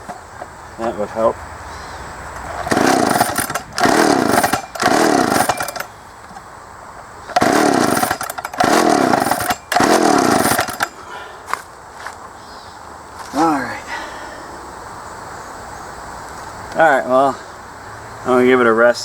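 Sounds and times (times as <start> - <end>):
chainsaw pull-start whirring: 0.0 - 0.5, 2.3 - 6.0, 7.2 - 11.0.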